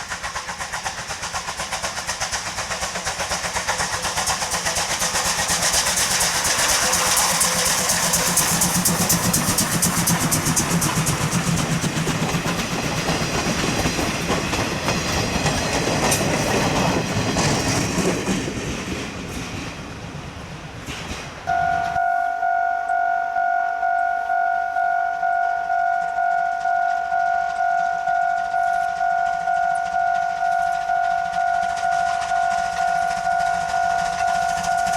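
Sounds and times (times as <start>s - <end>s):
steam locomotive exhaust beats: 0.0s - 34.9s
train wheel noise: 0.0s - 34.9s
level-crossing warning bell: 21.5s - 34.9s.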